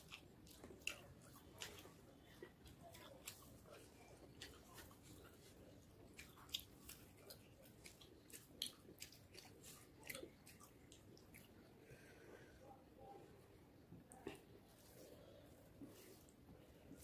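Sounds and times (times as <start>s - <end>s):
fingers mixing food on a plate: 0.0s - 11.8s
chewing: 0.0s - 12.0s, 14.0s - 17.0s.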